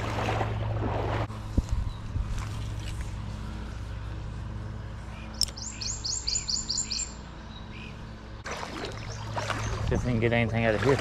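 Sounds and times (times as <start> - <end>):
songbird trill: 4.8 - 10.5.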